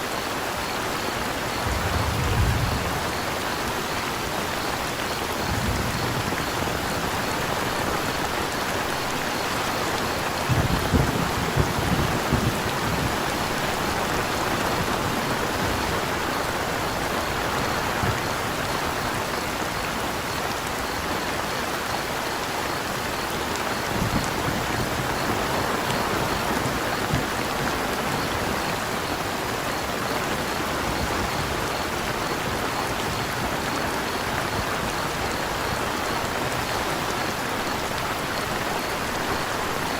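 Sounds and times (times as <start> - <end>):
crickets chirping: 0.0 - 39.9
rain pattering: 0.0 - 39.9
low thuds: 1.6 - 3.3.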